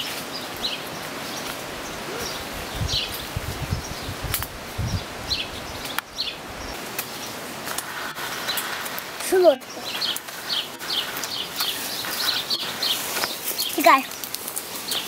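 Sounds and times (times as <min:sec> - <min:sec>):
small bird chirping: 0:09.4 - 0:15.0.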